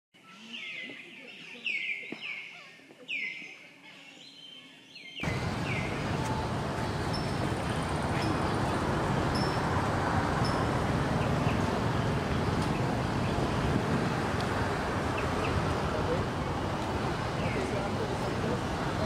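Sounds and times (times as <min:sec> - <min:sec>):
rushing outdoor noise: 0:05.2 - 0:19.0.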